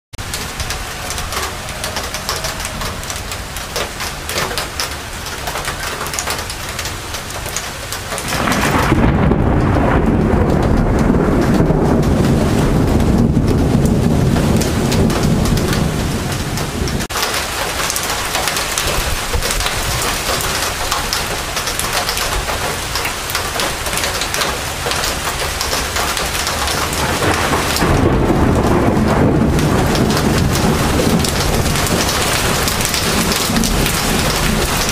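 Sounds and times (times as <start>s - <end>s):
steady rain falling: 0.2s - 34.9s
rolling thunder: 8.2s - 22.8s, 23.6s - 34.9s.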